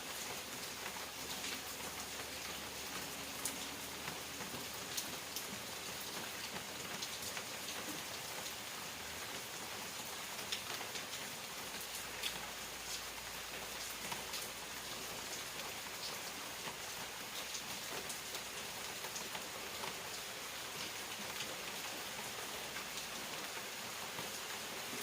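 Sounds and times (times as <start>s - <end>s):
raindrops ticking on a surface: 0.0s - 25.0s
steady rain hiss: 0.0s - 25.0s.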